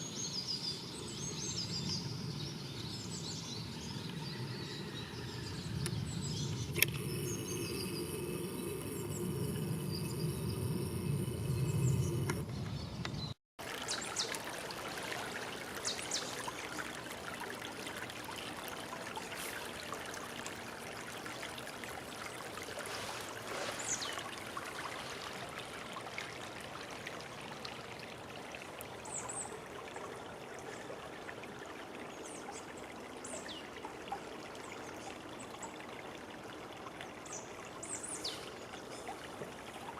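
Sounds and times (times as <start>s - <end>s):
stream water rushing: 13.6s - 32.0s.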